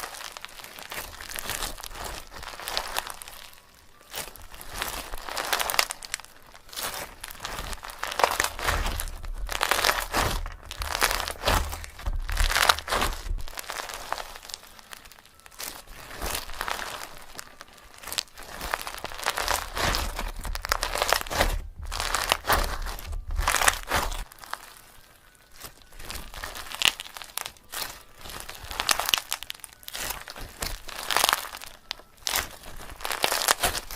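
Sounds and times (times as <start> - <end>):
crinkling and rustling: 0.0 - 33.9
low bumps: 7.3 - 13.6, 19.1 - 24.2.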